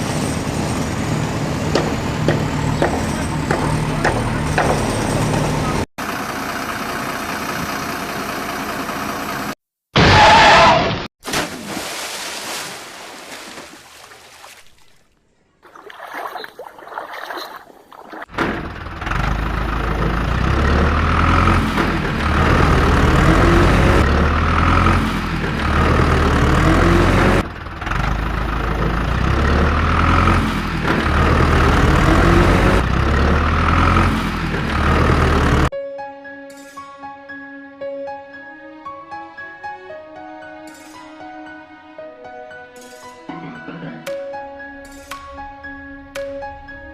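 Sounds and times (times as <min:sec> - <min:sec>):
heavy vehicle engine droning: 0:00.0 - 0:09.6, 0:18.3 - 0:35.7.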